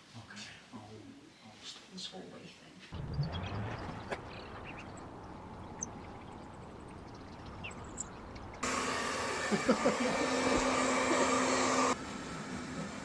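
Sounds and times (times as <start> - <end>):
loud machine noise with hum: 8.6 - 13.0.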